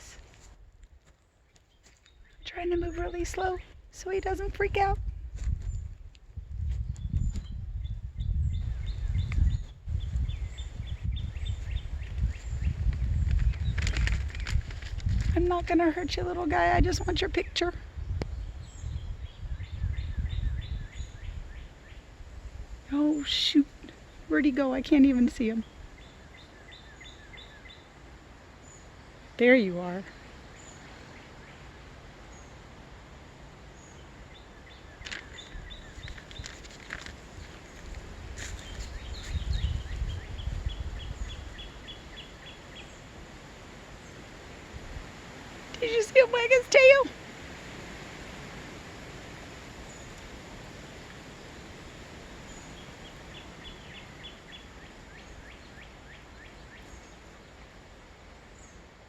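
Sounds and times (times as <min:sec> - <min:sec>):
steady outdoor hiss: 0:00.0 - 0:59.0
rustling in leaf litter: 0:11.6 - 0:16.0, 0:34.8 - 0:55.1.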